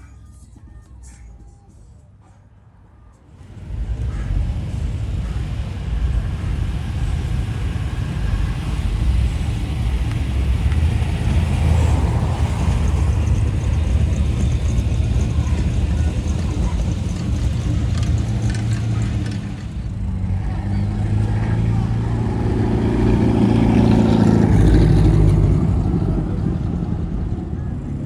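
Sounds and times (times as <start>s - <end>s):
car engines driving past: 3.2s - 28.0s.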